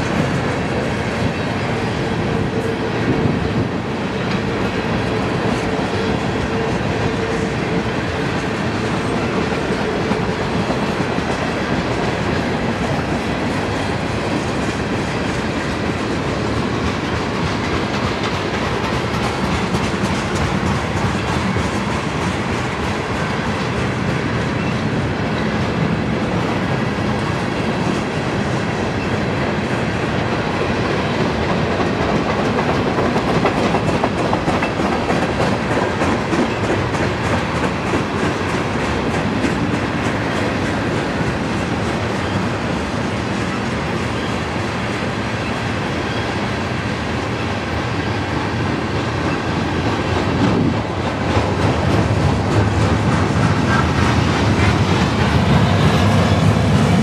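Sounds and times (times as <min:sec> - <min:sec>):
train wheels rumbling on rails: 0:00.0 - 0:57.0
wheels clicking over rail joints: 0:30.6 - 0:43.1.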